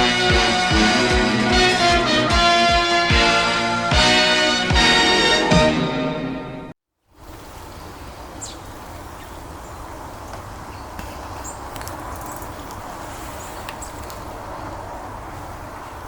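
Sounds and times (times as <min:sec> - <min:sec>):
small birds chirping: 0:07.2 - 0:16.0.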